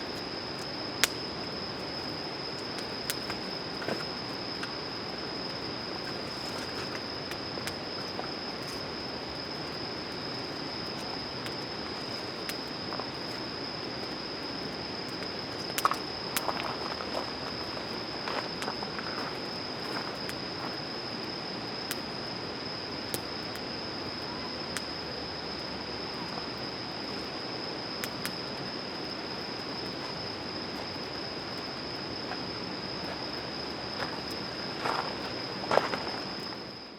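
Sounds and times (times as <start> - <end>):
campfire crackling: 0.0 - 36.9
crickets trilling: 0.0 - 36.9.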